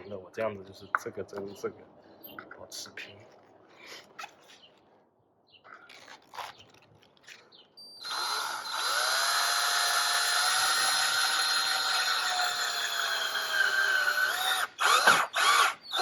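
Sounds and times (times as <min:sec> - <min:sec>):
power drill whining: 0:08.0 - 0:16.0.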